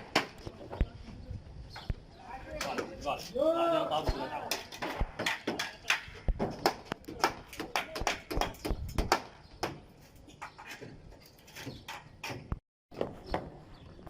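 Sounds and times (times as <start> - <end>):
construction knocks and taps: 4.5 - 13.5.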